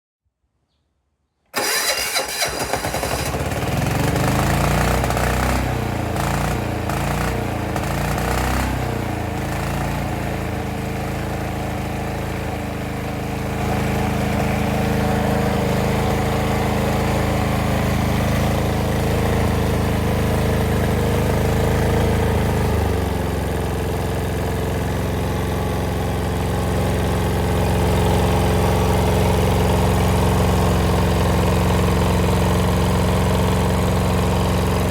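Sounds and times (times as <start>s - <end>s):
electric starter cranking engine: 1.6s - 7.2s
diesel engine running: 1.6s - 34.9s.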